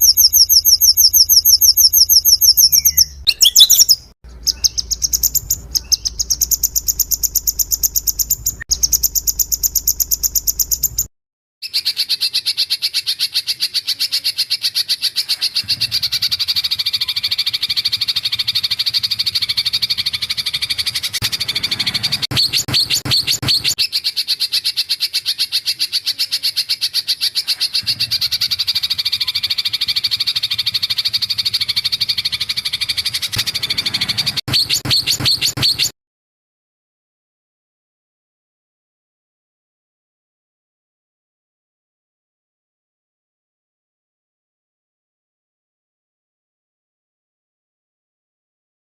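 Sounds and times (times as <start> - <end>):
songbird rattling trill: 0.0 - 25.7, 26.8 - 35.9.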